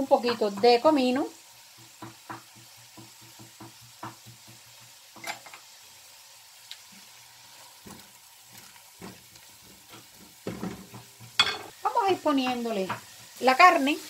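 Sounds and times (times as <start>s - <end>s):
vegetables sizzling in a pot: 0.0s - 14.0s
utensil knocking on pot: 2.0s - 4.6s.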